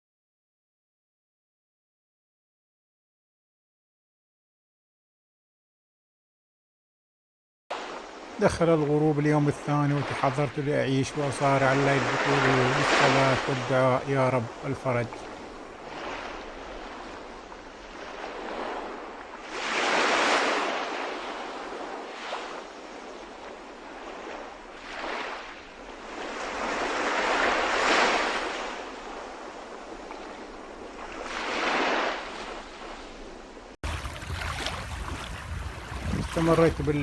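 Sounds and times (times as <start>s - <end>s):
sea waves washing in: 7.7s - 37.0s
wind noise: 33.8s - 37.0s.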